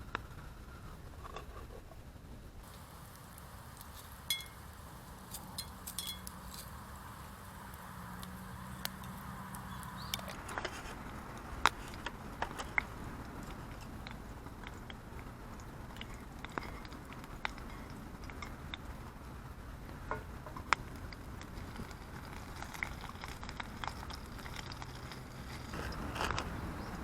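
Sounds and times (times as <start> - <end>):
low steady hiss: 0.0 - 27.0
campfire crackling: 2.6 - 27.0
metallic clinks: 4.3 - 6.8.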